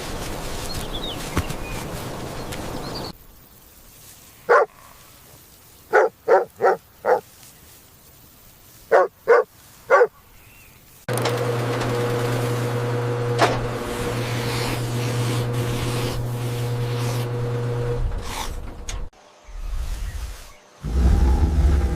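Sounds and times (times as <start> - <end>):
steady outdoor hiss: 0.0 - 11.1, 19.1 - 21.9
dog barking: 4.5 - 4.8, 5.9 - 7.2, 8.9 - 10.2.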